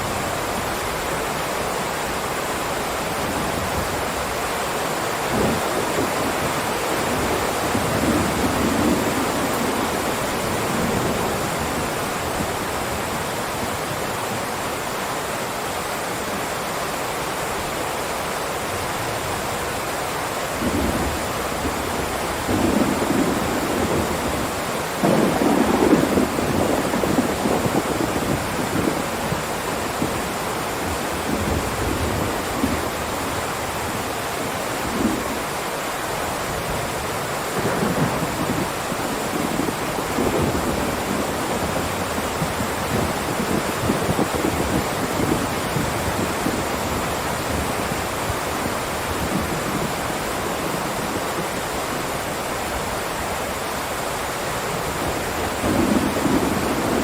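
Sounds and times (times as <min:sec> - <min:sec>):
heavy rain downpour: 0:00.0 - 0:57.0
thunder rumbling: 0:05.3 - 0:13.9, 0:20.6 - 0:34.0, 0:36.5 - 0:52.2, 0:54.9 - 0:57.0.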